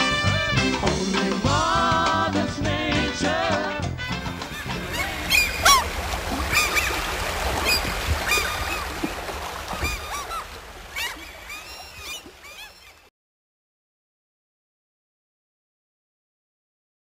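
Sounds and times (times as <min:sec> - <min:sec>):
running water rushing: 0:04.1 - 0:13.1
birds chirping: 0:04.4 - 0:13.1.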